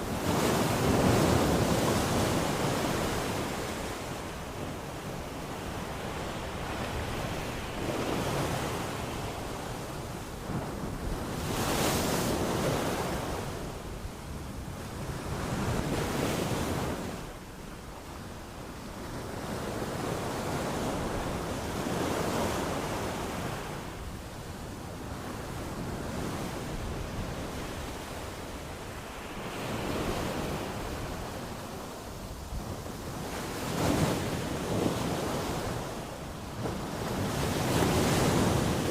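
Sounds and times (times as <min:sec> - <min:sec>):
ocean waves washing onto shore: 0:00.0 - 0:38.9.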